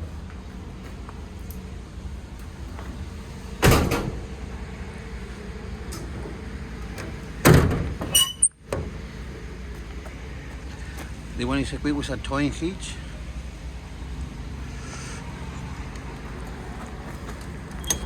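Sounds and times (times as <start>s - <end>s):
brief high squeak: 8.1s - 8.6s, 17.8s - 18.0s.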